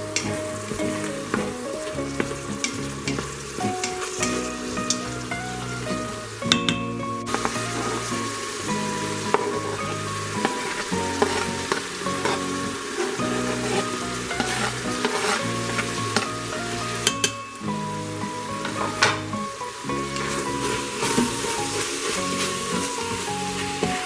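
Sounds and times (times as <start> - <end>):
wooden spoon stirring: 0.0 - 17.3, 19.9 - 24.0
meat and onion sizzling in pot: 0.0 - 24.0
knife scraping cutting board: 12.2 - 15.5.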